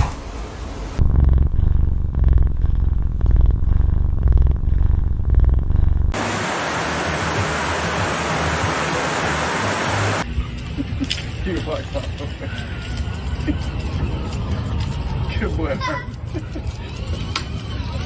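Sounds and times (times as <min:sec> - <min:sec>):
low rumbling buzz: 0:00.0 - 0:10.3.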